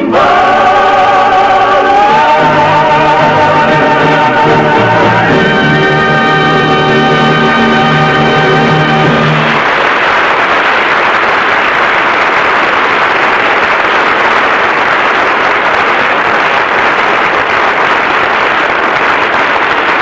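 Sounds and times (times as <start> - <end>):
orchestra and singers chord: 0.0 - 9.7
studio audience applauding: 6.9 - 20.0.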